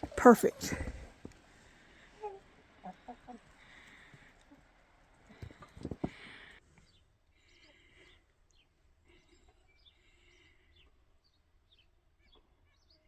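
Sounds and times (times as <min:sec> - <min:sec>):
songbirds chirping faintly: 0:00.0 - 0:13.0
soft thumps with rustle: 0:05.3 - 0:06.3.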